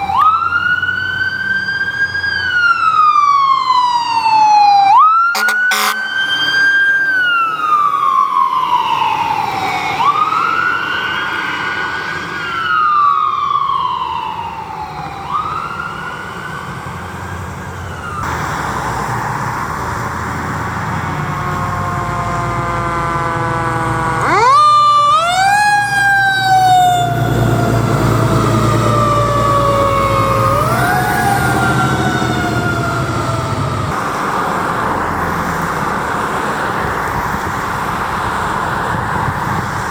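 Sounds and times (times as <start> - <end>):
emergency siren wailing: 0.0 - 39.9
heavy vehicle engine running: 16.7 - 24.4, 27.0 - 39.9.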